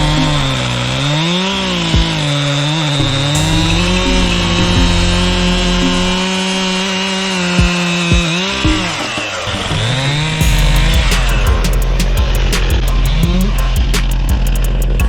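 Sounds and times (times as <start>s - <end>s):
music with steady beat: 0.0s - 0.6s, 3.0s - 6.5s, 7.6s - 9.2s, 10.4s - 15.0s
chainsaw cutting wood: 4.5s - 10.4s.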